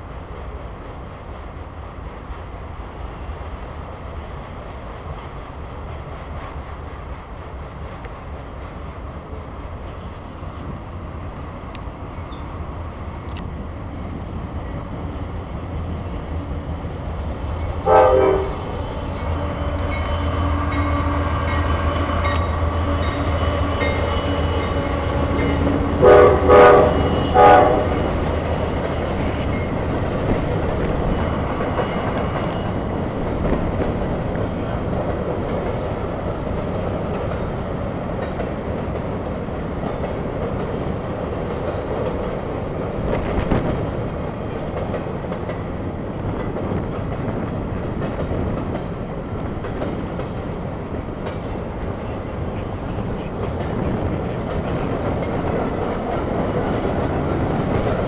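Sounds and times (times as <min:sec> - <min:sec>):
diesel locomotive hum: 0:00.0 - 0:58.0
train wheels clattering on rails: 0:00.0 - 0:58.0
train horn blasts: 0:17.8 - 0:28.2.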